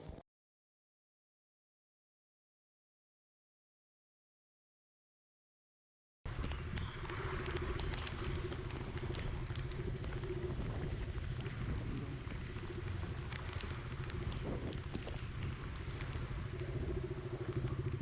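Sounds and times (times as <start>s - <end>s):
wind and road noise: 6.3s - 18.0s.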